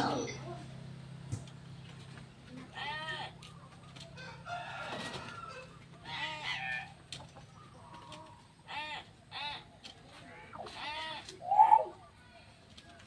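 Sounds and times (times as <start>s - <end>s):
harsh bird calls: 6.0s - 12.2s.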